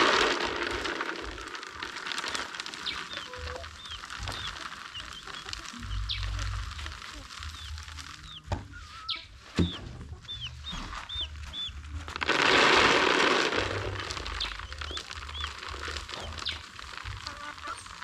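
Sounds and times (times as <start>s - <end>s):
chickens peeping: 2.2s - 12.1s, 13.8s - 18.0s.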